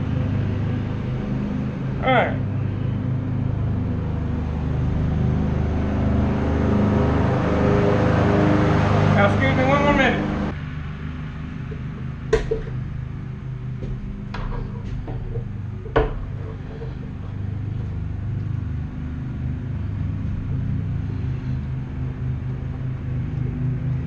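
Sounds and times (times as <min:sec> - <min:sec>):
steady low hum: 0:00.0 - 0:24.0
metallic clinks and knocks: 0:13.8 - 0:18.6.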